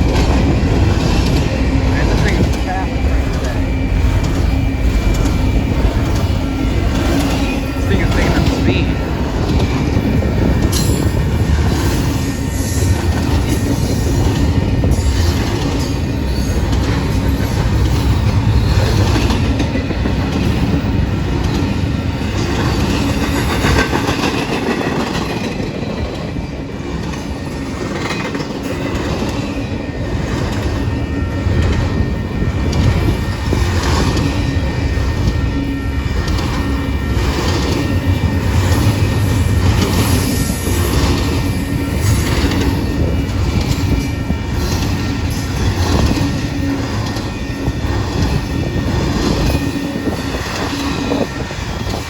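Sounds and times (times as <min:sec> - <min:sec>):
freight train rolling past: 0:00.0 - 0:52.0
wheels clicking over rail joints: 0:36.1 - 0:52.0.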